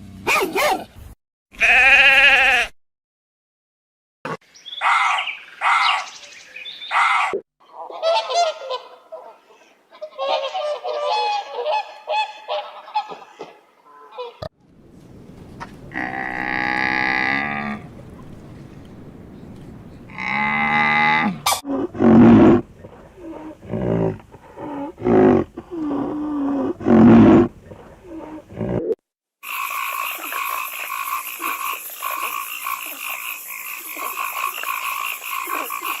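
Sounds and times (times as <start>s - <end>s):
waterfowl calling: 6.9s - 14.5s
frogs croaking: 15.6s - 21.4s, 29.4s - 36.0s
frogs trilling: 29.4s - 36.0s.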